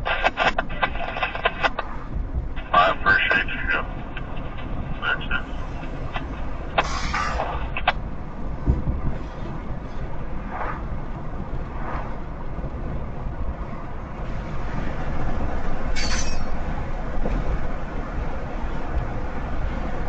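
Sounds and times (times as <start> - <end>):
car driving rumble: 0.0 - 20.0
freight train rolling: 0.0 - 20.0.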